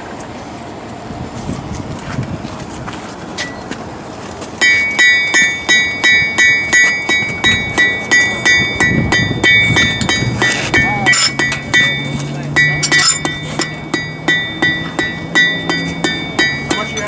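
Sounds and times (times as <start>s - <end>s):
hammer ringing on anvil: 4.6s - 17.0s.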